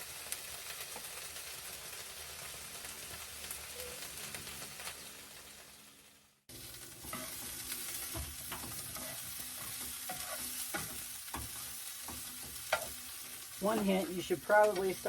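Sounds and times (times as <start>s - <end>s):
vegetables sizzling in a frying pan: 0.0s - 15.0s
spatula scraping a pan: 7.0s - 15.0s.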